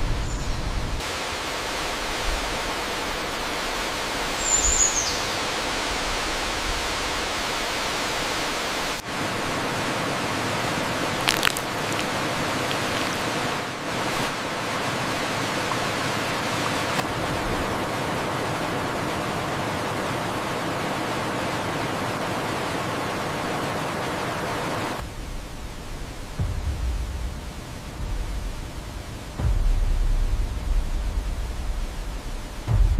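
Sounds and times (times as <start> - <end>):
waterfall rushing: 1.0 - 29.4
sharp crack: 11.2 - 13.2.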